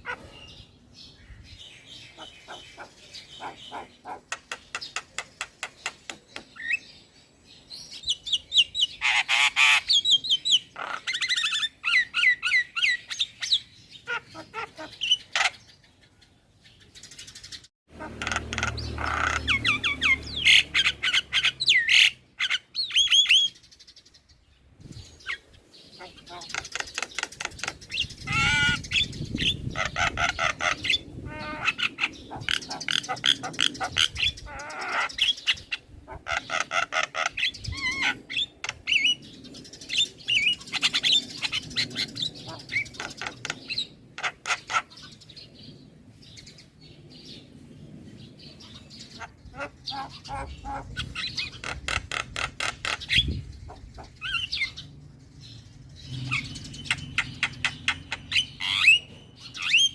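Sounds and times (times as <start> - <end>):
bird chattering and whistling: 1.9 - 6.9, 17.0 - 23.6, 25.2 - 45.2, 49.1 - 54.9, 56.1 - 59.9.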